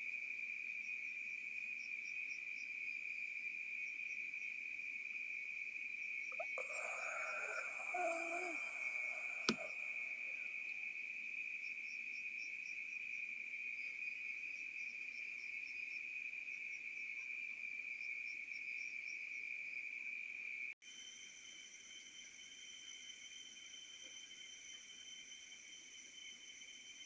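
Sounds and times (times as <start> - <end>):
crickets chirping: 0.0 - 27.0
high-pitched insect drone: 6.3 - 11.2, 20.8 - 27.0
steady high whine: 6.6 - 10.9, 20.9 - 27.0.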